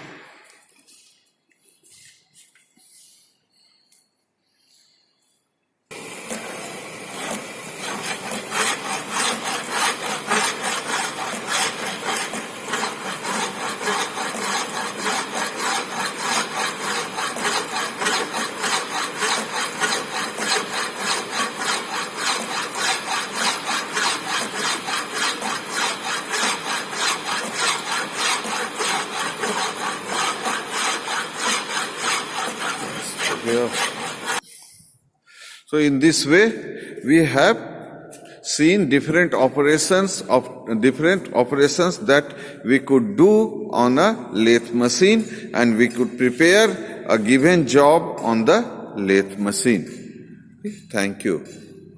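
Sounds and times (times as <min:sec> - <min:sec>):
hand file rasping on metal rod: 0:05.9 - 0:34.4.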